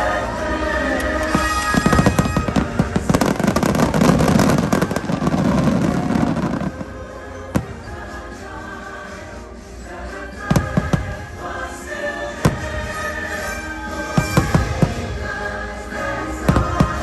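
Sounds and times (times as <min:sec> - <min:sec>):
show music: 0:00.0 - 0:17.0
fireworks cracking and banging: 0:01.0 - 0:08.0, 0:10.5 - 0:11.4, 0:12.2 - 0:17.0.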